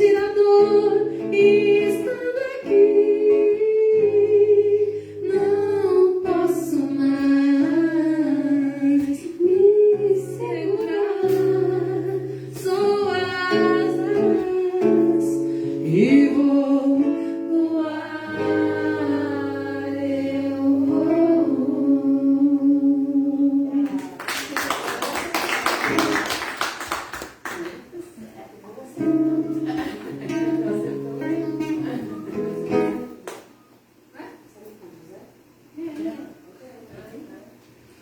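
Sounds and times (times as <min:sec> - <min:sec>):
person singing: 0:00.0 - 0:24.2.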